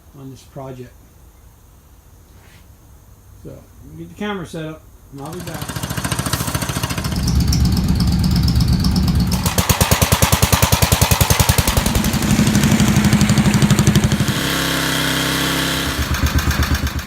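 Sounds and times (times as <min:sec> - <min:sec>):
engine running with steady hum: 0:05.2 - 0:17.0.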